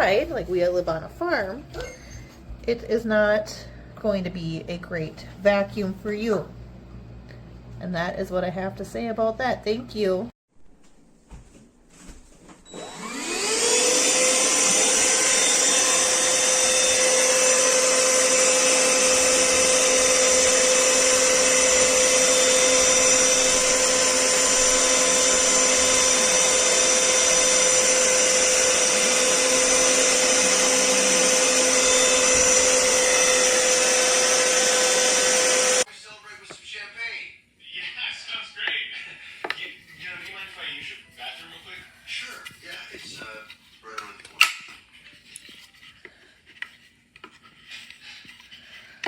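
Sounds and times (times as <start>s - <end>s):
stick vacuum motor whining: 12.7s - 35.9s.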